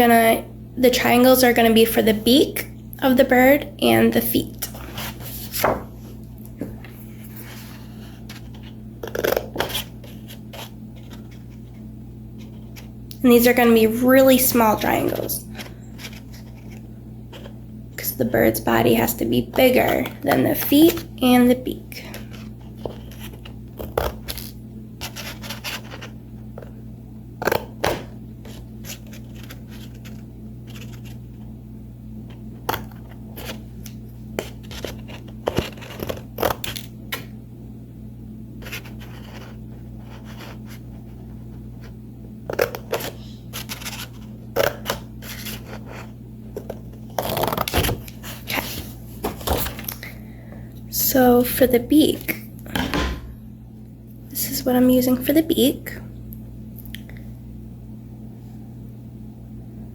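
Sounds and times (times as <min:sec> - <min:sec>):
steady low hum: 0:00.0 - 0:59.9
scissors snipping paper: 0:47.2 - 0:48.0.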